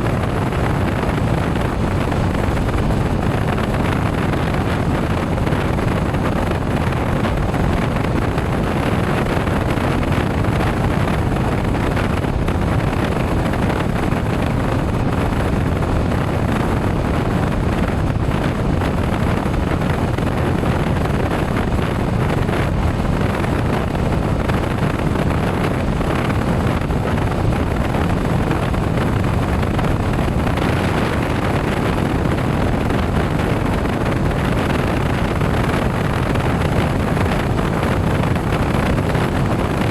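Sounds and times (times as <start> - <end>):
road noise: 0.0 - 39.9
wind rushing over microphone: 0.0 - 39.9.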